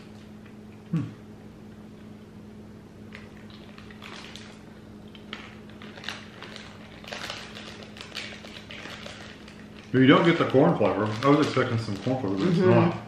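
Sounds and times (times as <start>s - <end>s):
snack wrapper crinkling: 3.1s - 13.0s.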